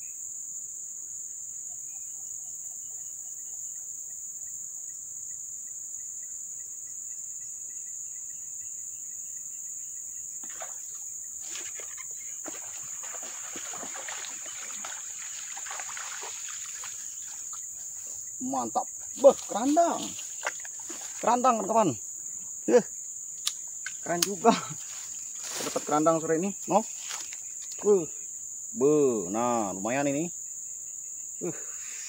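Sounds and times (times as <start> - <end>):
crickets chirping: 0.0 - 32.0
fish splashing in water: 10.4 - 17.7.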